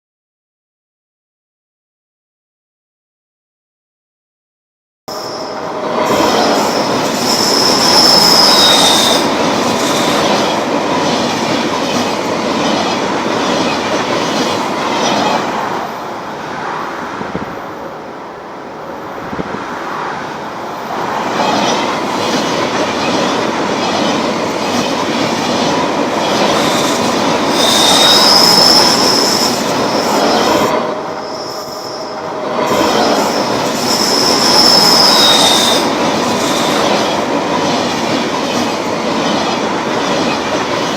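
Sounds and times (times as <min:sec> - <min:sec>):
high-pitched wheel squeals: 0:05.1 - 0:11.2, 0:24.8 - 0:37.7
train wheels clattering on rails: 0:05.2 - 0:40.9.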